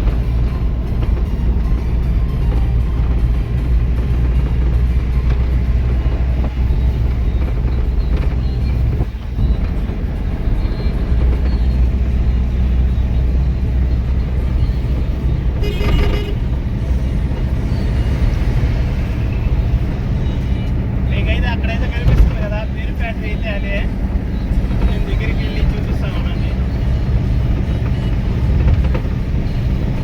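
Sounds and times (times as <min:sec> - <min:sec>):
truck driving on highway: 0:00.0 - 0:30.0
vehicle horn: 0:15.4 - 0:17.0.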